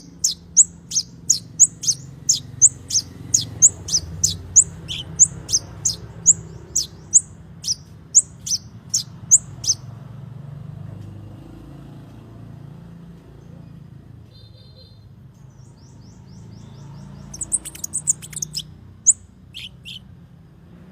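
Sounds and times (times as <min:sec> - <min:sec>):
bird chirping and trilling: 0:00.0 - 0:09.9, 0:14.9 - 0:20.2.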